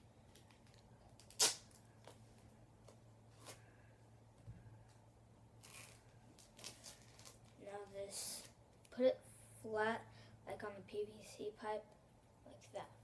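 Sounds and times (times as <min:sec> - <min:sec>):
low steady hum: 0:00.0 - 0:13.0
duct tape tearing crackle: 0:00.3 - 0:02.2, 0:05.6 - 0:07.6.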